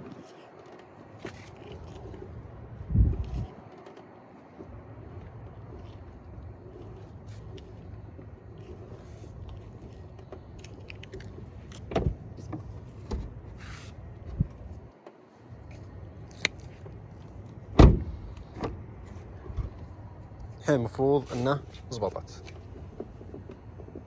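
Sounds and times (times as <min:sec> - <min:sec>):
car door opening and shutting: 0:09.6 - 0:15.1, 0:16.4 - 0:19.9
car door shutting with a thump: 0:11.8 - 0:12.2, 0:17.7 - 0:18.8.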